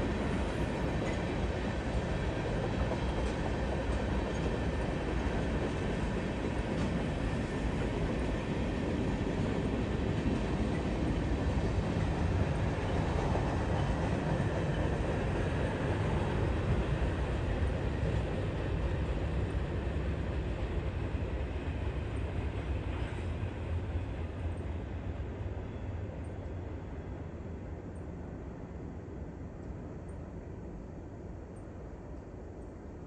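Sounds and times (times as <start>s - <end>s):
freight train wheels on rail: 0.0s - 33.0s.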